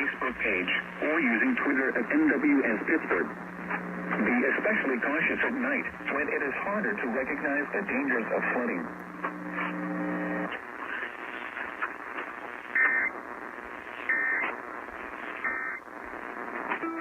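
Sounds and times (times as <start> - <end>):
low steady hum: 0.0 - 11.7
radio static: 0.0 - 17.0.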